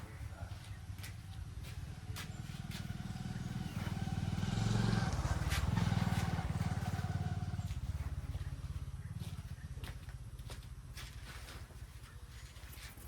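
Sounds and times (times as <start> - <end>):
engine passing by: 0.8 - 10.2.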